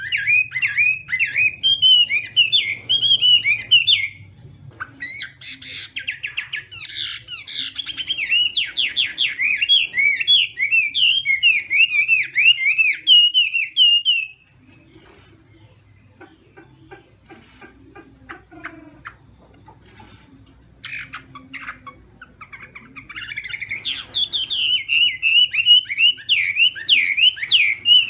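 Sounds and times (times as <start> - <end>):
bird song with whistles and trills: 0.0 - 14.5, 22.5 - 28.0.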